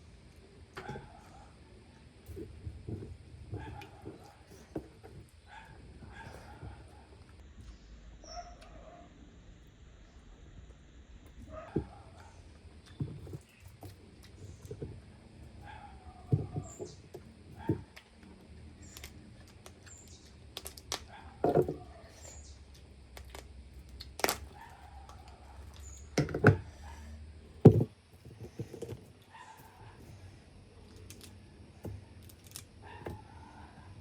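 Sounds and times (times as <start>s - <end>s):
chewing: 12.2s - 14.9s
crab shell cracking: 17.9s - 21.1s, 22.8s - 25.4s.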